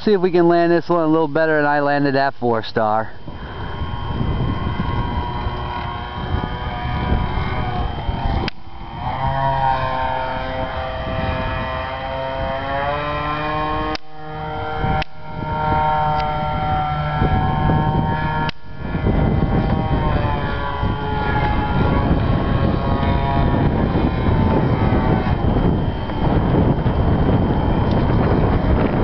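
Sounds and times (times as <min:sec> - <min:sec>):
model airplane motor whining: 0:00.0 - 0:29.0
wind rumble on microphone: 0:00.0 - 0:29.0
sharp clicks: 0:08.4 - 0:08.7, 0:14.9 - 0:15.2.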